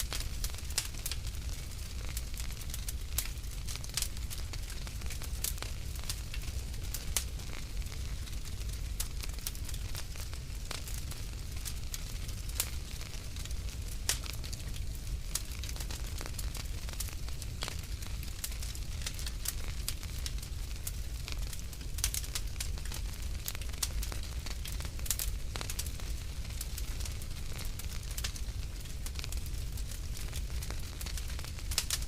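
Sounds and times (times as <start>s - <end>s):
low rumble of flames: 0.0s - 32.0s
wood fire crackling and popping: 0.0s - 32.0s.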